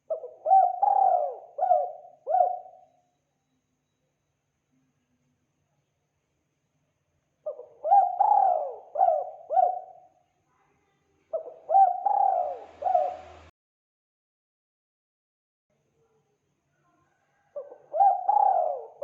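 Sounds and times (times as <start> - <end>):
dove cooing: 0.0 - 2.9, 7.4 - 10.1, 11.3 - 13.5, 17.6 - 19.0.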